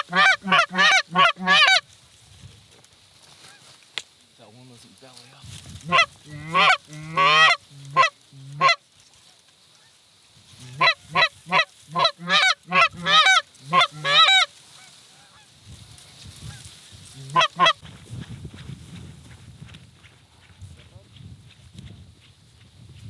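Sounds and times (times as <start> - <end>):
goose honking: 0.0 - 1.8, 5.8 - 8.8, 10.6 - 15.5, 16.5 - 17.8.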